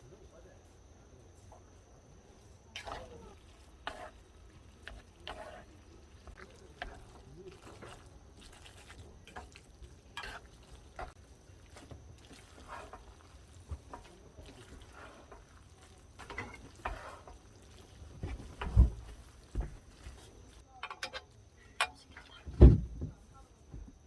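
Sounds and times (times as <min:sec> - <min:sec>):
low steady background noise: 0:00.0 - 0:24.0
short scrapes and rustles: 0:10.2 - 0:20.6.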